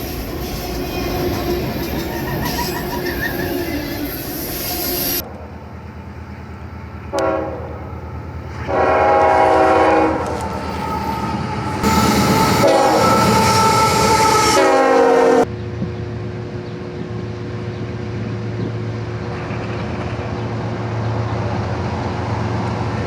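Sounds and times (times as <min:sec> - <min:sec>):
train rumbling past: 0:00.0 - 0:23.0
locomotive air horn: 0:06.6 - 0:15.5.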